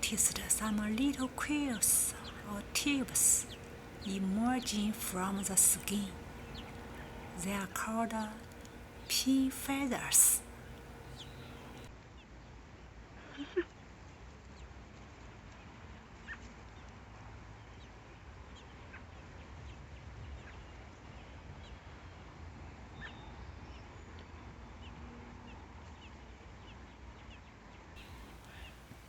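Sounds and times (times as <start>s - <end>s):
faint bird chirps: 0.0s - 11.9s, 28.0s - 29.0s
low background rumble: 0.0s - 11.9s, 28.0s - 29.0s.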